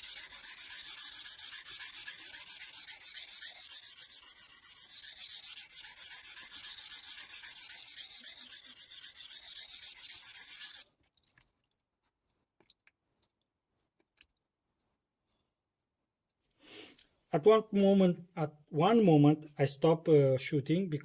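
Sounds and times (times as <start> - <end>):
knife scraping on whetstone: 0.0 - 10.9.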